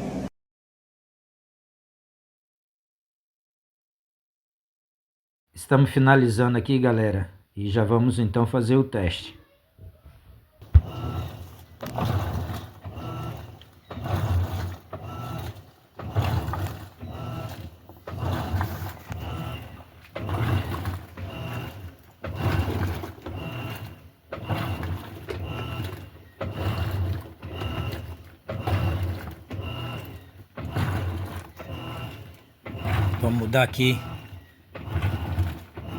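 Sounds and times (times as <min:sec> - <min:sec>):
washing machine agitating: 0:10.6 - 0:35.9.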